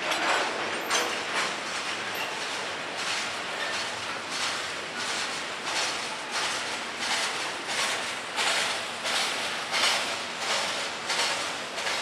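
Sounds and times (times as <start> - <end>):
train wheels clattering on rails: 0.0 - 12.0.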